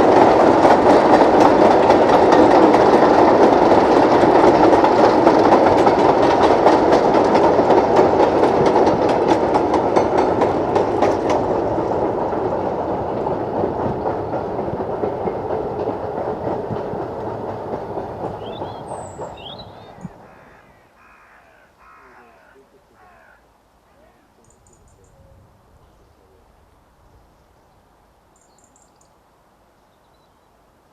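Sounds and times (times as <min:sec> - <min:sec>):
train wheels clattering on rails: 0:00.0 - 0:20.5.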